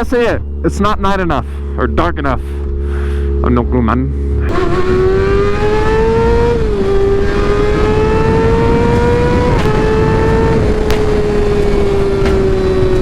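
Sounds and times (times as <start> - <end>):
motorcycle engine accelerating: 0.0 - 13.0
wind rushing over microphone: 4.3 - 13.0.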